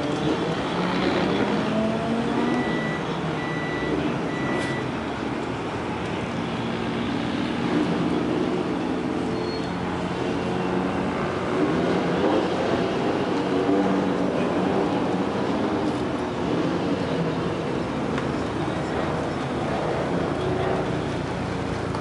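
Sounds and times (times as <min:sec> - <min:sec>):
race cars passing at speed: 0:00.0 - 0:22.0
short high beeps: 0:02.5 - 0:04.9.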